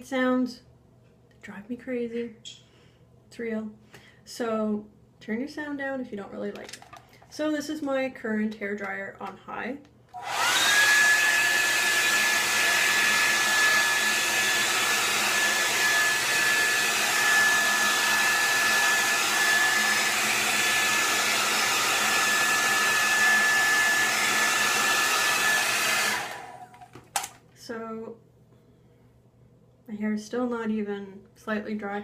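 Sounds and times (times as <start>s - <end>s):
hair dryer running: 10.1s - 27.4s.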